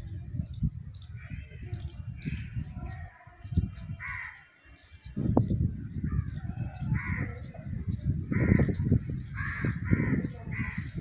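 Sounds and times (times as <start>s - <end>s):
harsh bird calls: 0.4s - 11.0s.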